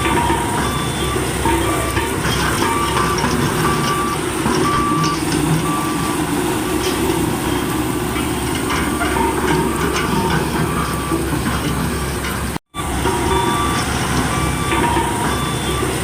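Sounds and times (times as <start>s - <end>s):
engine rumble: 0.0s - 16.0s
reversing alarm beeping: 0.0s - 16.0s.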